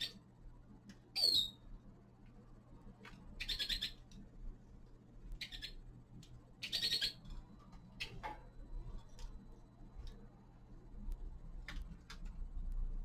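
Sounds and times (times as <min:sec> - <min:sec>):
finches chirping: 0:00.0 - 0:00.2, 0:01.1 - 0:01.7, 0:03.3 - 0:04.1, 0:05.4 - 0:05.9, 0:06.5 - 0:08.3
steady low hum: 0:00.0 - 0:13.0.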